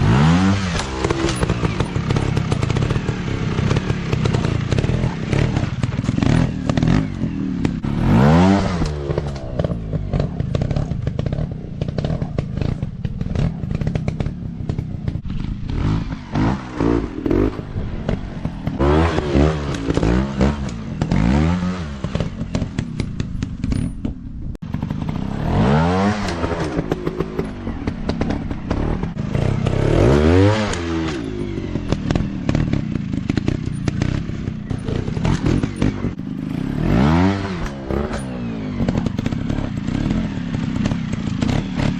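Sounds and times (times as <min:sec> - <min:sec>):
dirt bike engine revving: 0:00.0 - 0:23.9, 0:24.6 - 0:41.9.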